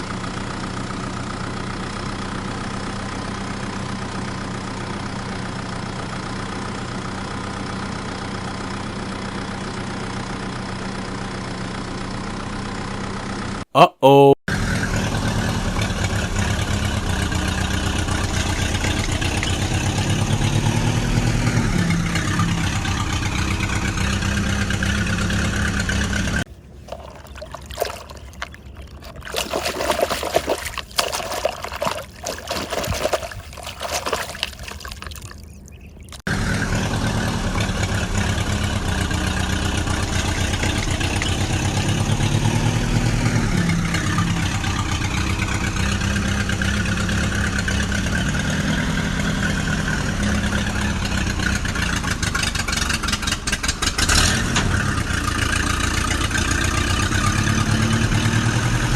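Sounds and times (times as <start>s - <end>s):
vehicle engine running: 0.0s - 13.6s, 14.5s - 58.9s
water trickling and pouring: 26.7s - 36.3s
small clicks and splashes: 26.8s - 36.3s.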